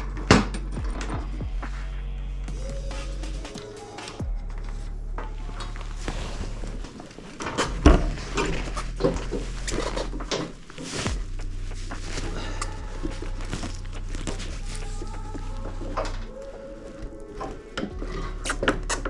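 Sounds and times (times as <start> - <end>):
steady low hum: 0.0 - 7.0, 7.7 - 16.3.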